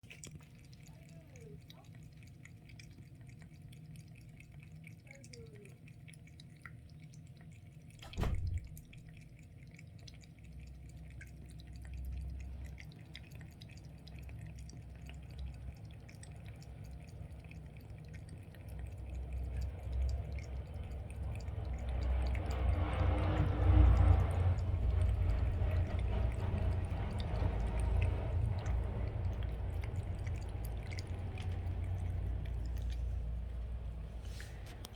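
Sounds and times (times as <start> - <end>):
kitten lapping water: 0.0 - 34.9
thump: 8.0 - 8.7.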